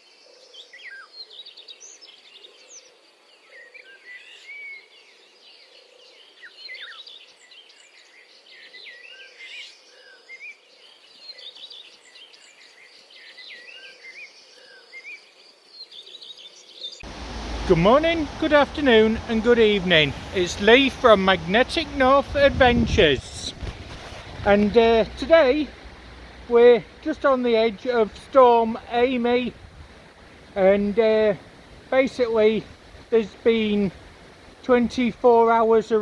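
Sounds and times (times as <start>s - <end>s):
small birds chirping and singing: 0.0s - 17.0s.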